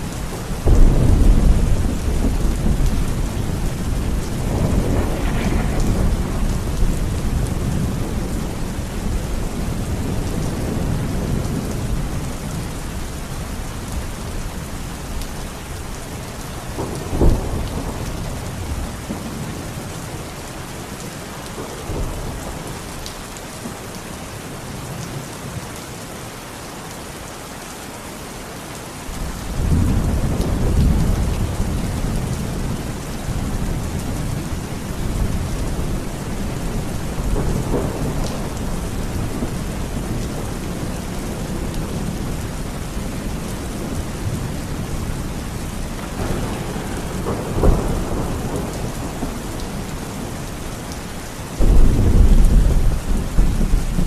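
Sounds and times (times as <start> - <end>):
heavy rain: 0.0 - 54.0
sharp thunderclap: 0.6 - 9.1, 46.0 - 49.9, 51.6 - 54.0
deep thunder rumble: 0.6 - 12.5, 29.2 - 50.7, 51.6 - 54.0.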